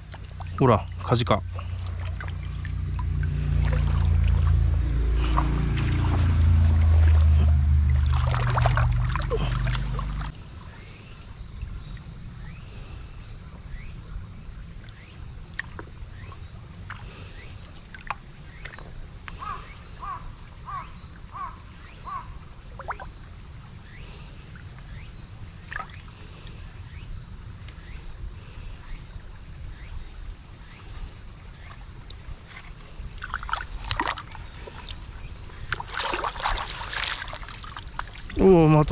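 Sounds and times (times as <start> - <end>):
water splashes and clicks: 0.0 - 10.6, 14.8 - 16.0, 17.7 - 19.4, 25.7 - 26.1, 31.7 - 38.4
mountain stream flowing: 0.0 - 10.8, 32.4 - 38.9.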